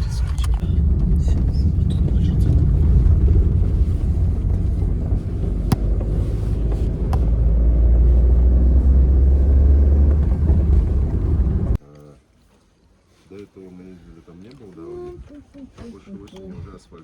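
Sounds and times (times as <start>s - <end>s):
vehicle engine and road rumble: 0.0s - 11.8s
sharp knocks: 5.7s - 6.2s.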